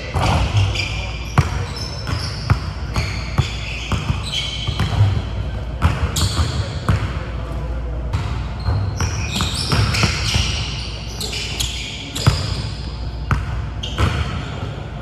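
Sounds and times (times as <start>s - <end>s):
shoe squeaks: 0.0s - 7.0s, 8.2s - 14.7s
basketballs bouncing on court: 0.0s - 14.7s.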